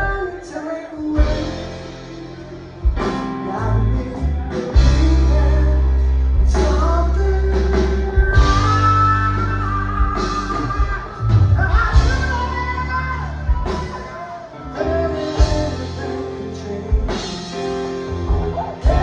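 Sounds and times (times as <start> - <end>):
person singing: 0.0 - 19.0
rock band playing live: 0.0 - 19.0
heavy sustained bass notes: 3.6 - 13.7.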